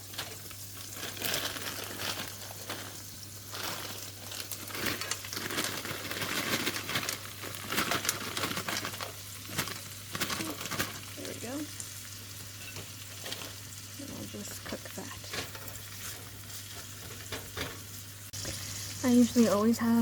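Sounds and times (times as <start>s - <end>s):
bag crinkling: 0.0s - 11.8s, 12.7s - 13.8s
food sizzling in a pan: 0.0s - 20.0s.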